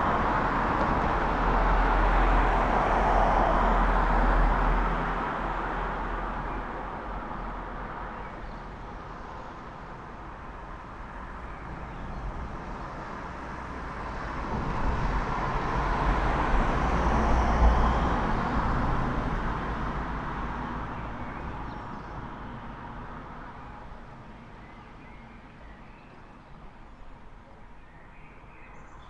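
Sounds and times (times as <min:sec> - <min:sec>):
vehicle passing by: 0:13.7 - 0:21.4.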